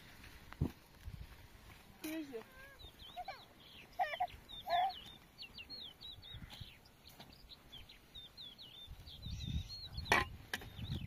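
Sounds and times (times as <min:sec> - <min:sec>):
birds chirping: 0:01.6 - 0:11.0
lower bird calls: 0:02.4 - 0:11.0.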